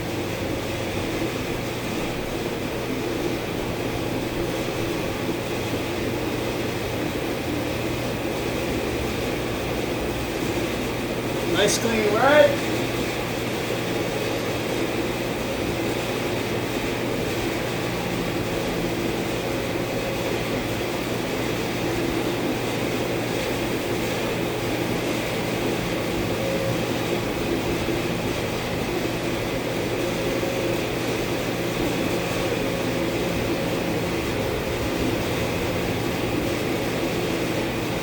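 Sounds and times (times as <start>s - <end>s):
machine hum: 0.0s - 14.2s.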